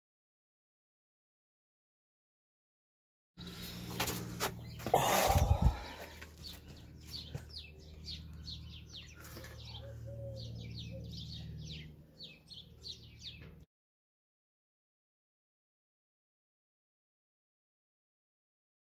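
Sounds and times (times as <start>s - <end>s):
small birds chirping: 3.4s - 13.7s.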